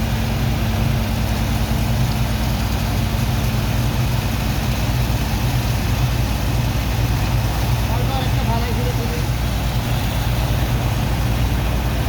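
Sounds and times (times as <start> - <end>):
dredge pump engine droning: 0.0 - 12.0.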